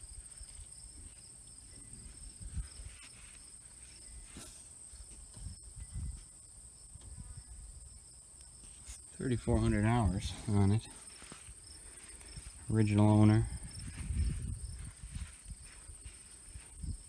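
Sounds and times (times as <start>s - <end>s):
insects chirping: 0.0s - 17.0s
soft low thumps: 9.4s - 17.0s.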